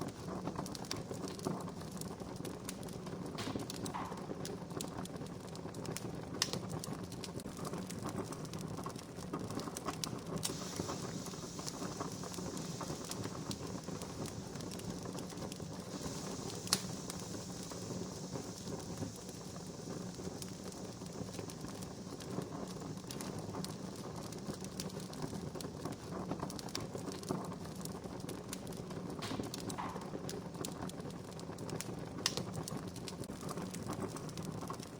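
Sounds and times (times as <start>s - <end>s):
wood campfire crackling: 0.0s - 34.9s
soft high hiss: 10.2s - 26.1s.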